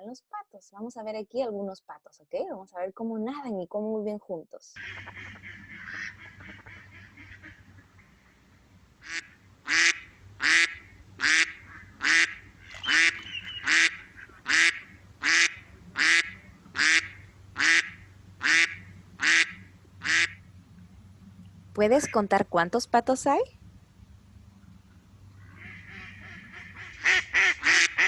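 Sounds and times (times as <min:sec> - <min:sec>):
duck quacking: 0:04.8 - 0:08.1, 0:09.0 - 0:20.4, 0:21.8 - 0:22.4, 0:25.4 - 0:28.0.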